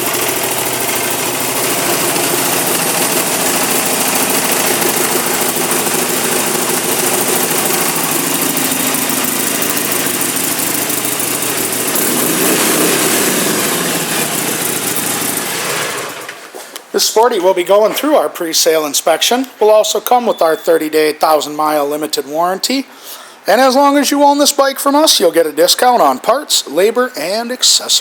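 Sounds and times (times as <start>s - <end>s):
motorcycle engine idling: 0.0s - 16.3s.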